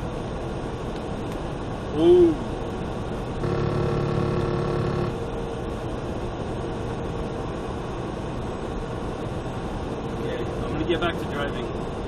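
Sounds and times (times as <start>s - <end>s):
car road noise from inside: 0.0s - 5.8s
steady multi-pitch tone: 3.4s - 5.2s.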